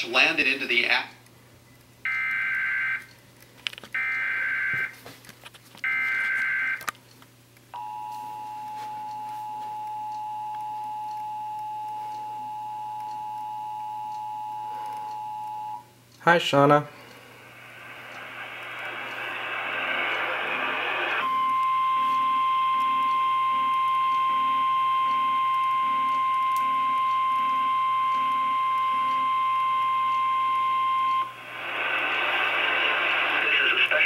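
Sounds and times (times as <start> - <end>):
steady high alarm tone: 2.1 - 3.1, 4.0 - 5.0, 5.9 - 6.8, 7.8 - 15.8, 20.9 - 31.6
radio static: 17.4 - 21.4, 31.4 - 34.0.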